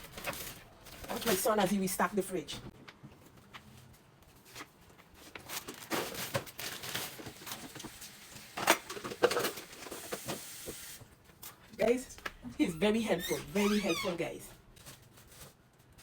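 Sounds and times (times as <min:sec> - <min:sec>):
plastic bags crinkling: 0:00.0 - 0:01.9, 0:03.4 - 0:10.5.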